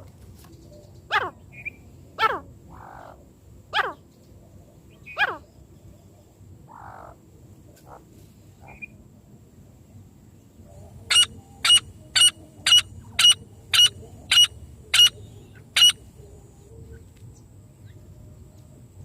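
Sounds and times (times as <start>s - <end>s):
francolin calls: 4.9s - 5.6s, 8.6s - 9.0s, 10.7s - 17.1s
faint high whine: 7.2s - 19.0s.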